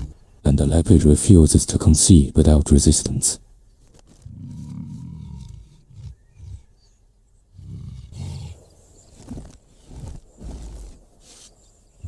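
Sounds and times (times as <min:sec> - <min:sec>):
big cats growling: 0:00.0 - 0:00.4, 0:04.1 - 0:11.3.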